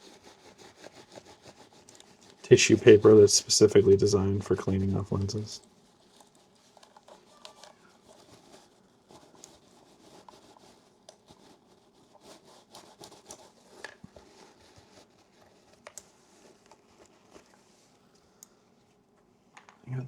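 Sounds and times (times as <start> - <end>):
rubbing and scratching: 0.0 - 18.0
small clicks and ticks: 5.6 - 8.6, 15.7 - 17.5.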